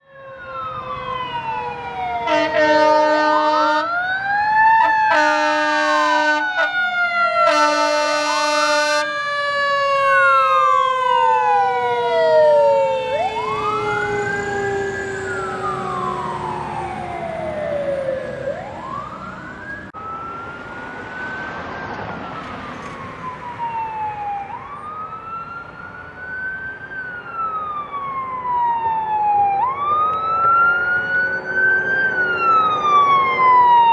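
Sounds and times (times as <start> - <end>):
fire engine sirens wailing: 0.0 - 33.9
horn blasts: 2.2 - 3.9, 5.1 - 6.7, 7.4 - 9.1.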